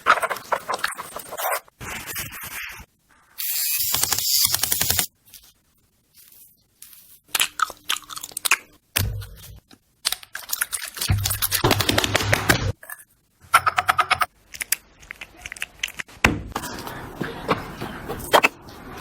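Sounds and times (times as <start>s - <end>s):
crisp clicks and crackles: 6.2s - 8.8s, 10.0s - 13.1s.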